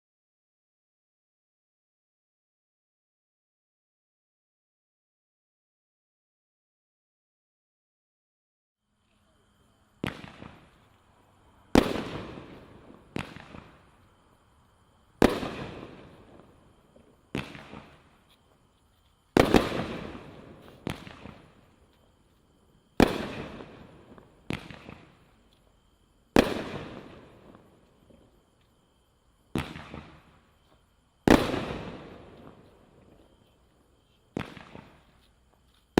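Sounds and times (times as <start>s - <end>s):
firework cake bangs: 11.8s - 13.9s, 15.2s - 16.5s, 17.3s - 18.2s, 19.3s - 21.6s, 22.9s - 25.2s, 26.4s - 27.7s, 31.3s - 33.4s, 34.3s - 35.1s.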